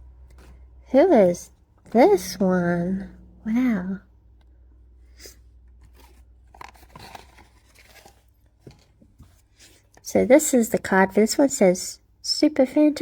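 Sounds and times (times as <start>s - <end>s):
packaging rustling and crinkling: 5.8s - 10.0s.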